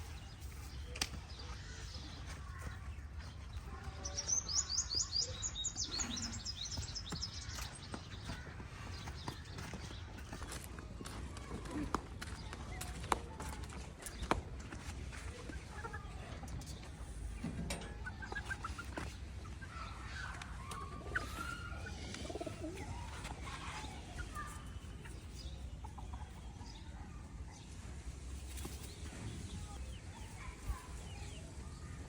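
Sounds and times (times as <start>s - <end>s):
birds chirping and calling: 0.0s - 11.2s, 15.1s - 27.3s.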